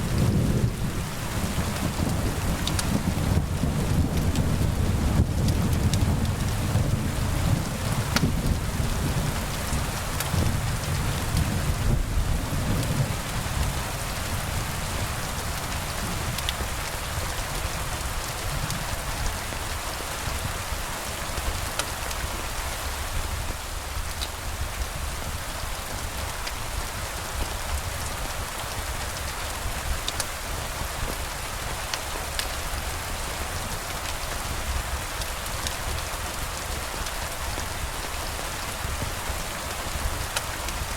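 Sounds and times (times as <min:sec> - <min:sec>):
thunder rumble: 0:00.0 - 0:16.4
steady rain: 0:00.0 - 0:40.9.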